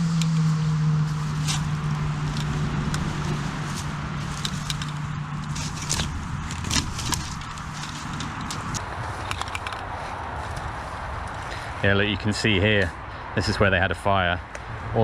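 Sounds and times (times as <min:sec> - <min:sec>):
low vehicle drone: 0:00.0 - 0:15.0
road traffic hum: 0:00.0 - 0:15.0
footsteps on dry twigs and leaves: 0:00.2 - 0:11.9.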